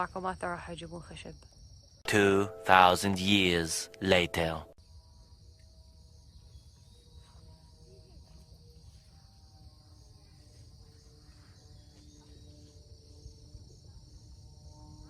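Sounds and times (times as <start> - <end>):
crickets chirping: 0.0 - 2.0, 3.2 - 15.0.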